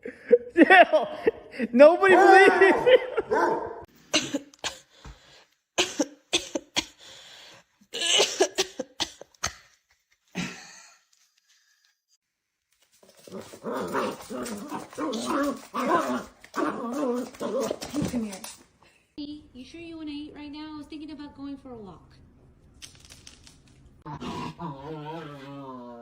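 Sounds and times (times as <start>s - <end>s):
dog barking and huffing: 2.1s - 3.9s, 13.2s - 17.9s
dog whining and moaning: 24.0s - 26.0s.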